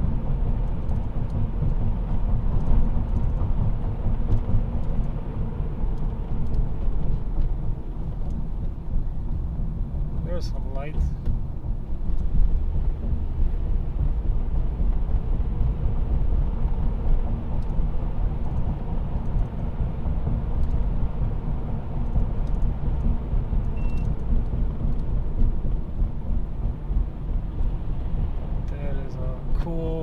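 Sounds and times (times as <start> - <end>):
road and tyre rumble: 0.0 - 30.0
high beep: 23.8 - 24.1.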